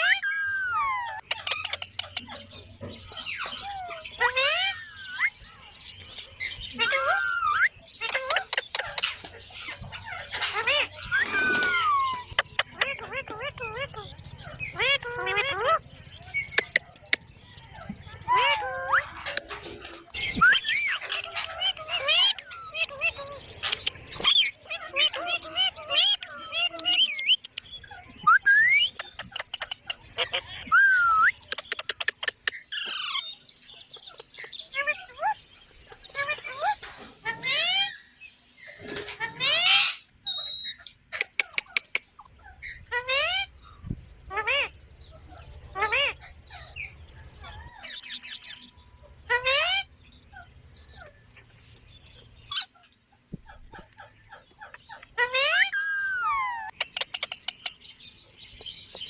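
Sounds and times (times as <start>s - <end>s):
parrot chirping call: 0.0s - 2.5s, 3.1s - 5.4s, 6.4s - 51.3s, 53.5s - 57.8s
parrot gliding call: 10.1s - 12.4s.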